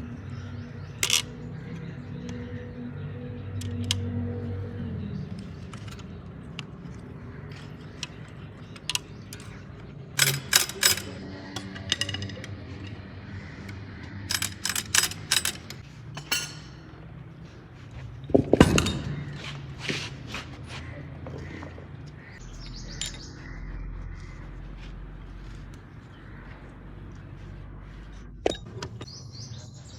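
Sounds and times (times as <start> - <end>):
metal tools clinking: 1.0 - 1.5, 5.4 - 17.1.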